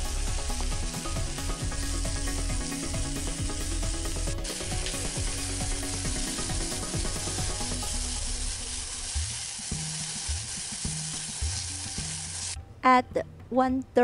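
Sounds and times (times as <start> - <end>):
meat sizzling in hot oil: 0.0 - 12.6.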